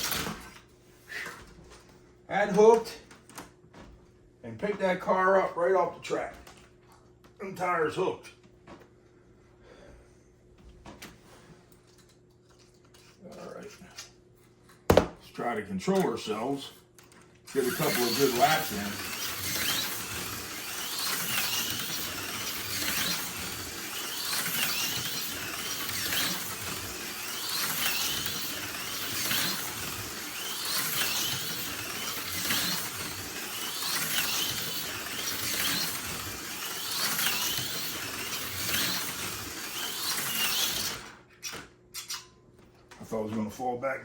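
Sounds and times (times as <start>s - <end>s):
slot car motor whine: 0.0s - 0.6s, 17.5s - 41.2s.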